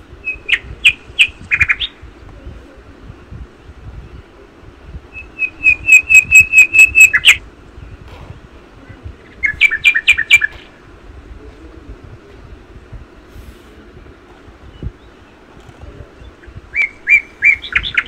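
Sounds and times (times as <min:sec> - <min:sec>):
bird whistling song: 0:00.2 - 0:02.0, 0:05.1 - 0:07.4, 0:09.4 - 0:10.7, 0:16.2 - 0:18.0.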